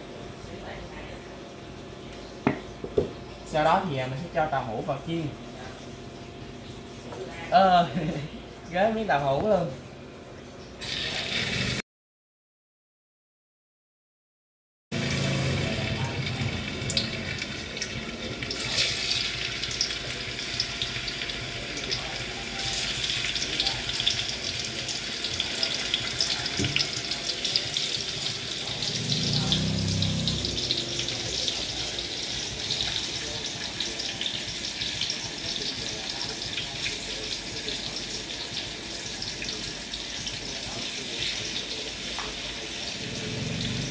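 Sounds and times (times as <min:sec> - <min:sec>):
tofu sizzling in hot oil: 0:10.8 - 0:11.8, 0:15.0 - 0:43.2
oil popping and crackling: 0:15.0 - 0:43.9.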